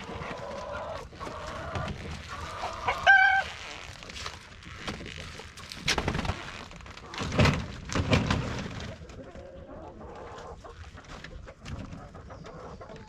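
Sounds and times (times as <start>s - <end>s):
chickens clucking: 0.0s - 3.6s, 8.4s - 13.0s.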